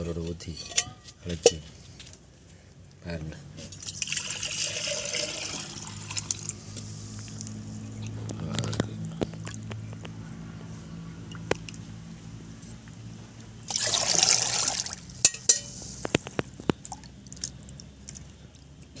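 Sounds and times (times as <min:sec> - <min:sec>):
liquid pouring: 0:03.8 - 0:06.6, 0:13.6 - 0:15.2
utensil clinking against vessel: 0:15.2 - 0:15.8.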